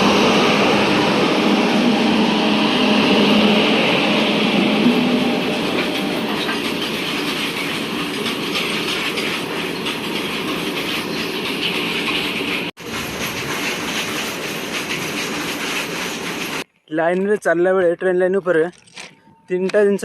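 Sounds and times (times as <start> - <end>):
train wheels clicking over rail joints: 4.8 - 16.6.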